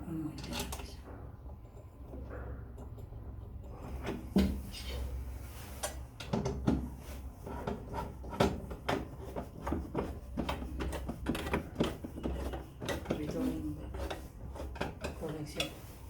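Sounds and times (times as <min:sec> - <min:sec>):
household objects knocking and clattering: 0:01.0 - 0:04.7, 0:06.1 - 0:07.0, 0:07.6 - 0:15.4.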